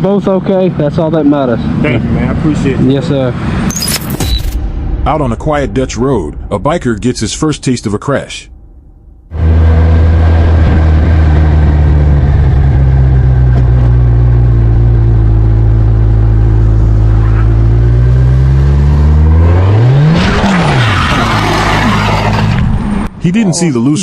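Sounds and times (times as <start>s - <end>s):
motorcycle engine running: 9.3s - 19.4s.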